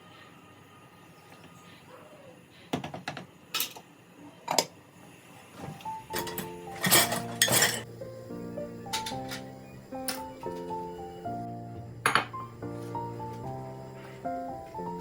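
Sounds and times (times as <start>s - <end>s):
soft background music: 5.6s - 15.0s
dishes and cutlery clinking: 6.1s - 7.9s, 8.9s - 9.5s.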